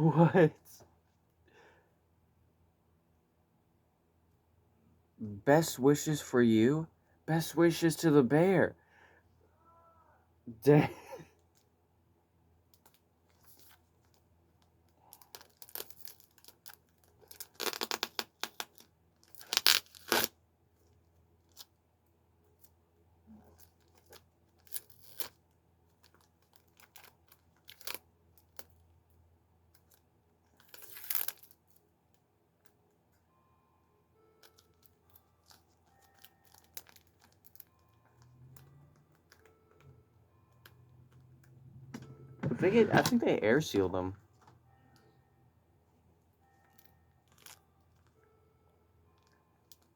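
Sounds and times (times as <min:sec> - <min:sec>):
plastic packaging tearing: 0:15.2 - 0:20.3.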